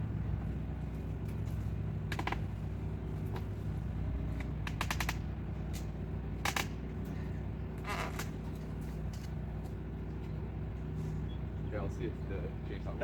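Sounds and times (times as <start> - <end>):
truck engine idling: 0.0 - 13.0
sharp clicks and rattles: 4.3 - 6.8.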